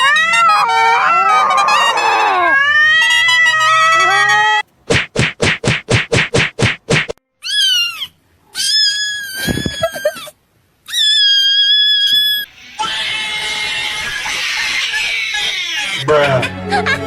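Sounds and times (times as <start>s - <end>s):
short noisy beats: 4.9s - 7.2s
cat meowing: 10.9s - 16.1s.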